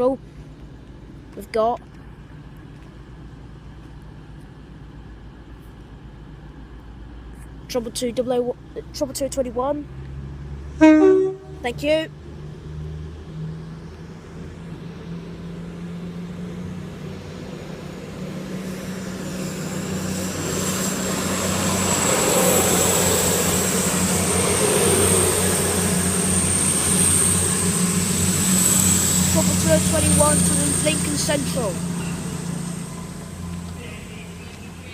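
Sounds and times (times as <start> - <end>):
train diesel engines droning: 0.0 - 34.9
thin high whine: 18.8 - 34.9.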